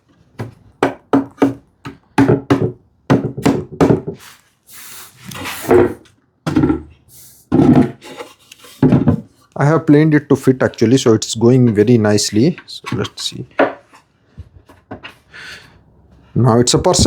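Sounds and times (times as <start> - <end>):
knocks and taps on wood: 0.4 - 4.2.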